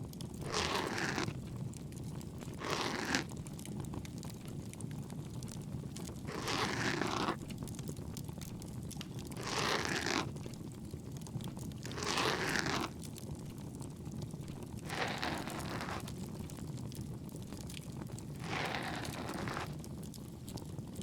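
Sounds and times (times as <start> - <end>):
ear pick scraping ear canal: 0.4 - 1.4, 2.5 - 3.3, 14.9 - 16.1, 18.4 - 19.8
crackling bonfire: 3.3 - 6.3, 7.4 - 9.4, 10.3 - 11.9, 12.9 - 14.9, 15.5 - 21.0.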